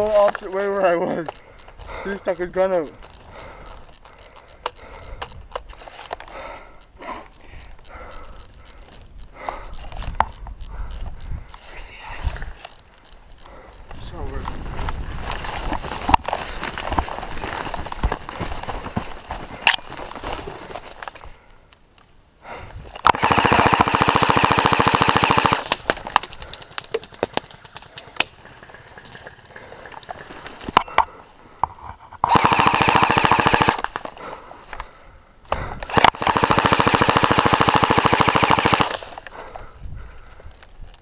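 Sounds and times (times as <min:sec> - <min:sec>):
airsoft rifle full-auto bursts: 0:23.0 - 0:25.8, 0:32.3 - 0:34.0, 0:35.8 - 0:39.2.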